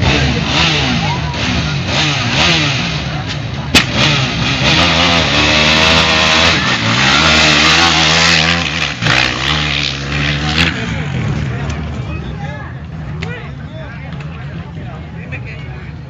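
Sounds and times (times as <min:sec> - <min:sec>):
racing motorcycle engines revving: 0:00.0 - 0:16.0
sharp crack: 0:03.2 - 0:04.6.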